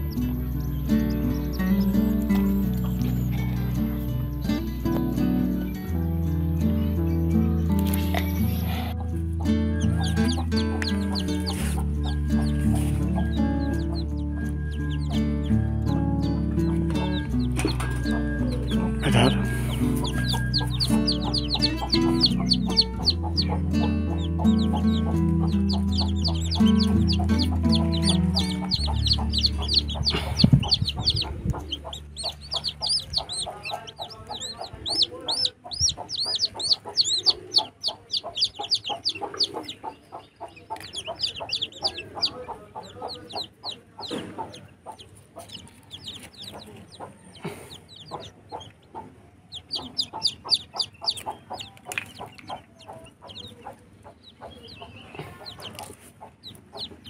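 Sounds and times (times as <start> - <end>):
background music: 0.0 - 39.7
chicks peeping: 0.0 - 57.0.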